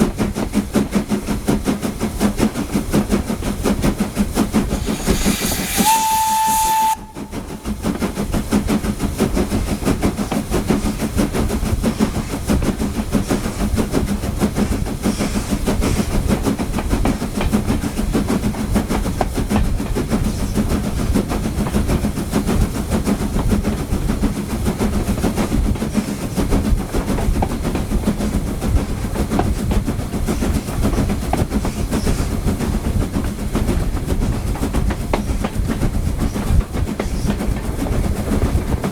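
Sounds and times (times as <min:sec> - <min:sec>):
train rumbling along track: 0:00.0 - 0:38.9
steam whistle blast: 0:04.6 - 0:07.9.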